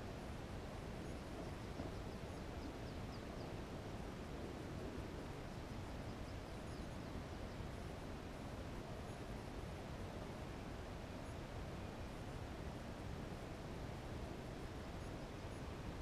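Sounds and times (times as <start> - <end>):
low outdoor background noise: 0.0 - 16.0.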